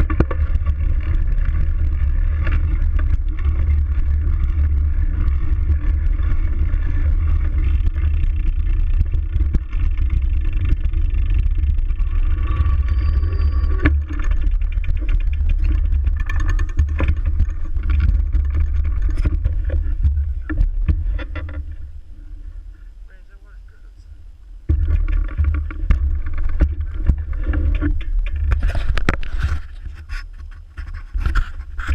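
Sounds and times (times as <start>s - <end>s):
bike rattles and clicks: 0.0s - 23.2s, 24.6s - 31.9s
wind buffeting microphone: 0.0s - 23.2s, 24.0s - 31.9s.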